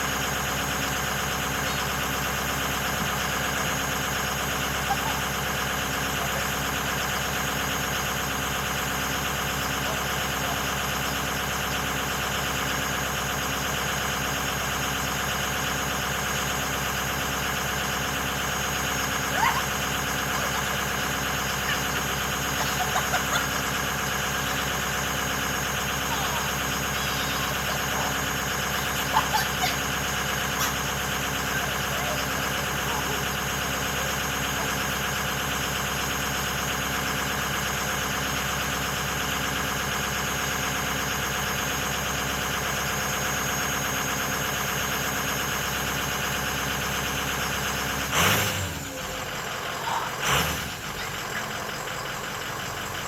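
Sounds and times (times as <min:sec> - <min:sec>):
diesel engine idling: 0:00.0 - 0:53.0.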